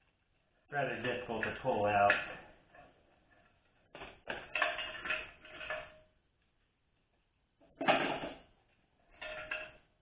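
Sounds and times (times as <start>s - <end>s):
metallic ringing rattle: 9.1s - 10.0s.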